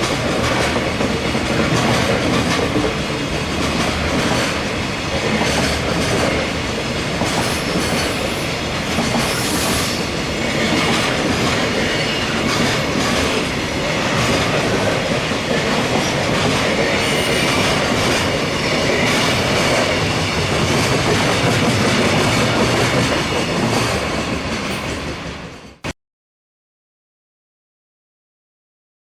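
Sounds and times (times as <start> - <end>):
freight train wheels clattering: 0.0 - 25.8
wheels squealing on rails: 7.2 - 25.8.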